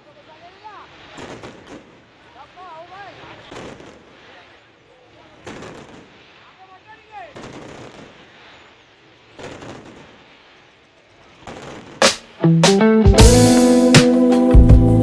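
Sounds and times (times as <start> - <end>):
fireworks bangs: 0.0 - 12.4
music: 12.0 - 15.0.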